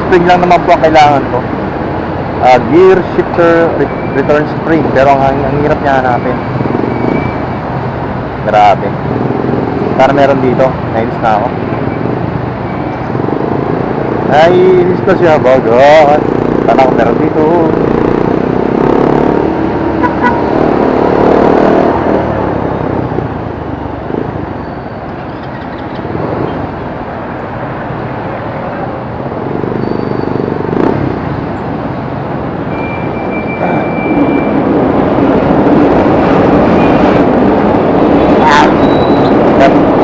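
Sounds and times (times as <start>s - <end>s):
vehicles passing: 0.0s - 40.0s
short high beep: 32.7s - 34.6s, 38.7s - 39.3s.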